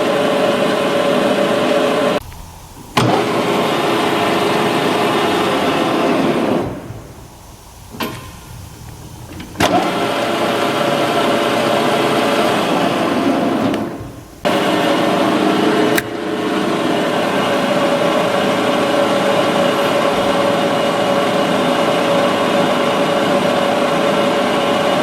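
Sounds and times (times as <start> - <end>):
lathe motor humming: 0.0 - 25.0
sharp click: 15.9 - 16.2.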